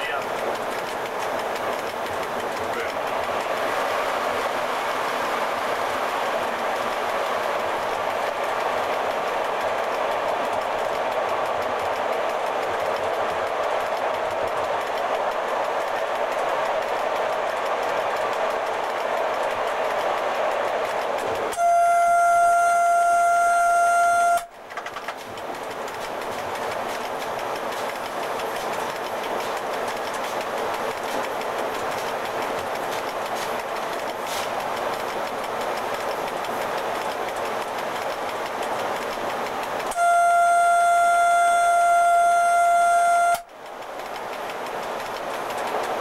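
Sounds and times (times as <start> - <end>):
locomotive running noise: 0.0 - 46.0
rail clicks: 0.0 - 46.0
train horn: 21.5 - 24.5, 39.9 - 43.5.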